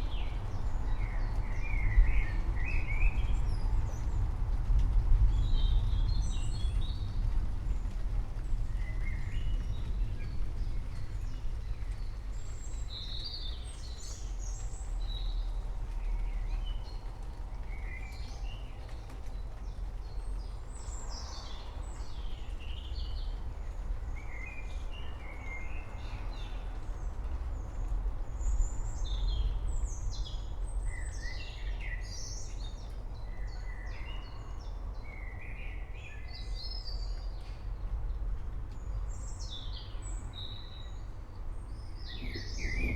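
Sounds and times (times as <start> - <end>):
songbirds chirping: 8.4 - 42.9
low storm rumble: 37.8 - 42.9.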